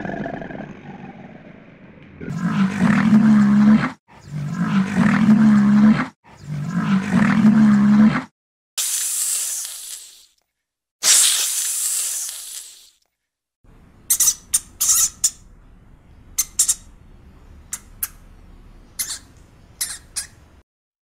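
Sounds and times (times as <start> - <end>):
snake hissing: 8.8 - 10.4, 11.0 - 13.0
rat squeaking while feeding: 14.1 - 15.4, 16.4 - 16.9, 19.0 - 20.4.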